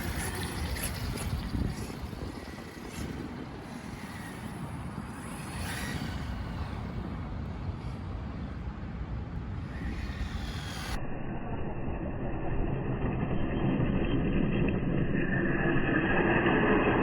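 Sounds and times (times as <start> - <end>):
rc car rumbling: 0.0 - 11.0
faint steady whine: 0.0 - 17.0.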